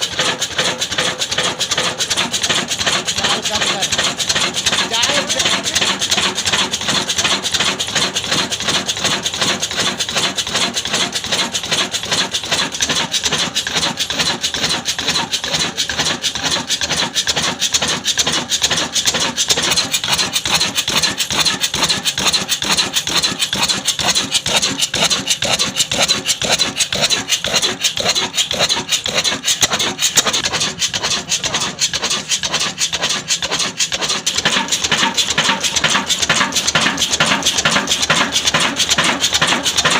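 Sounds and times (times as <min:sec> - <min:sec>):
diesel engine running: 0:00.0 - 0:39.9
saw rasping through wood: 0:00.0 - 0:39.9.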